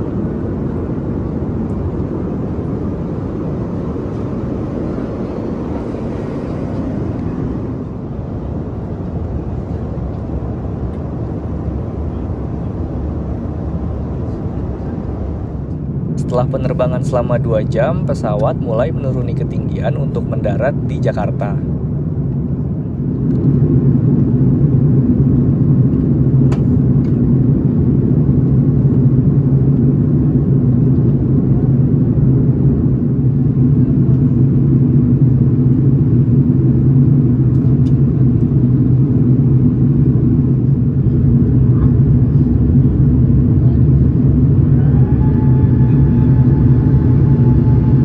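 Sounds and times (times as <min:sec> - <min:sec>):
airplane cabin engine rumble: 0:00.0 - 0:48.0
thin steady whine: 0:13.9 - 0:22.9, 0:31.4 - 0:48.0.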